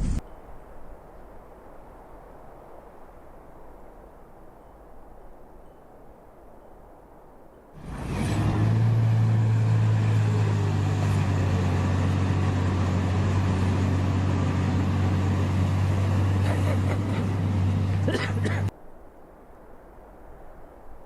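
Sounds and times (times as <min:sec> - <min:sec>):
vehicle engine humming: 0:00.0 - 0:00.2, 0:07.8 - 0:18.7
traffic noise: 0:07.8 - 0:18.7.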